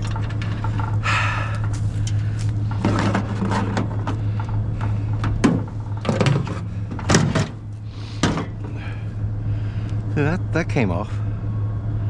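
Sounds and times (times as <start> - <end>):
metal knocking and scraping: 0.0 - 8.8
steady low hum: 0.0 - 12.0.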